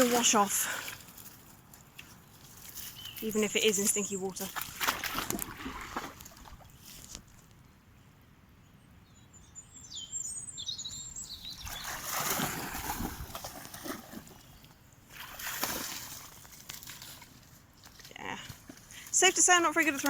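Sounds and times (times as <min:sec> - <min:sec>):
dog splashing through muddy water: 0:00.0 - 0:06.9, 0:11.5 - 0:20.0
small bird chirping: 0:09.0 - 0:12.0.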